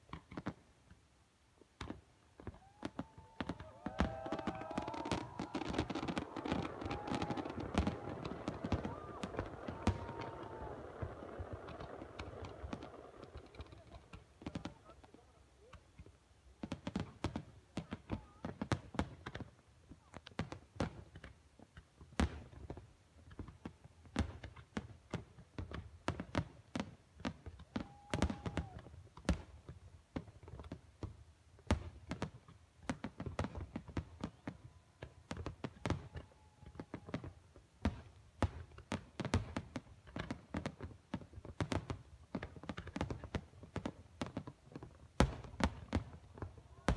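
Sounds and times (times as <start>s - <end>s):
distant fireworks popping: 0.1s - 0.6s, 1.8s - 46.9s
murmur of crowd voices: 2.6s - 16.0s.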